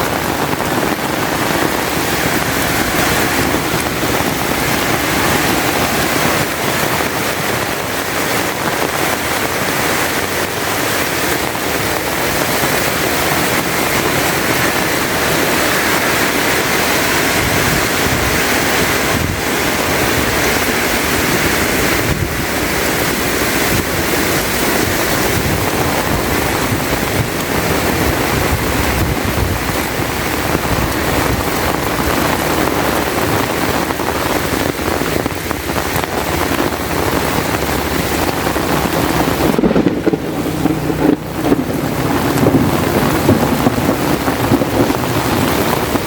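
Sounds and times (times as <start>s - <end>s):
heavy rain falling: 0.0s - 46.0s.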